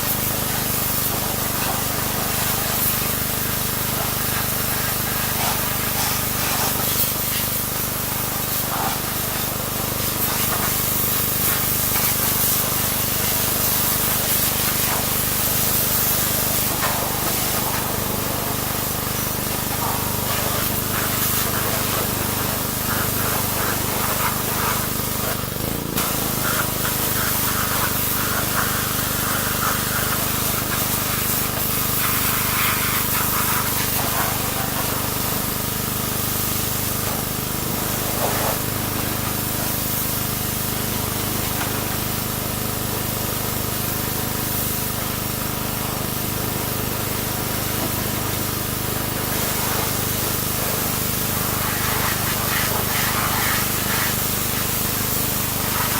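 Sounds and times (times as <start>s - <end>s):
pressure washer motor hum: 0.0s - 55.9s
pressure washer water jet spraying: 0.0s - 55.9s.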